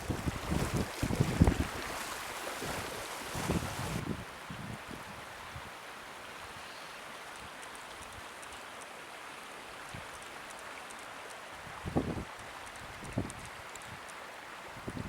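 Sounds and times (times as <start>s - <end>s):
wind buffeting microphone: 0.0s - 5.7s, 11.6s - 13.5s, 14.8s - 15.0s
floodwater flowing: 0.0s - 15.0s.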